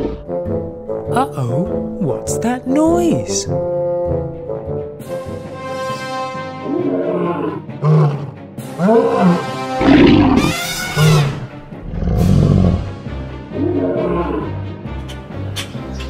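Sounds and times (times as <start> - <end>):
background music: 0.0 - 16.0
wild animal roars and calls: 6.6 - 14.6.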